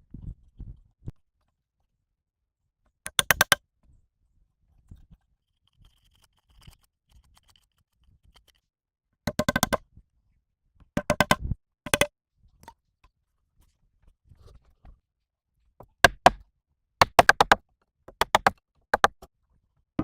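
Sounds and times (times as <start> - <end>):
faint scrapes and ticks: 3.8 - 8.8, 12.6 - 15.1.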